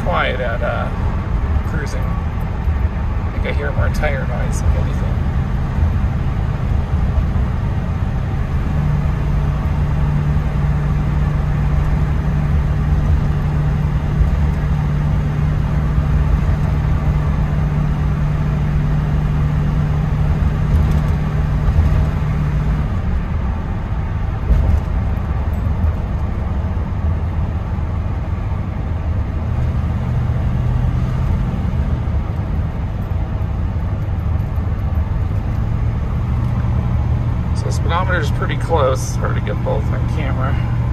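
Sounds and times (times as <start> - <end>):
low engine drone: 0.0 - 40.9
tire and road noise: 0.0 - 40.9.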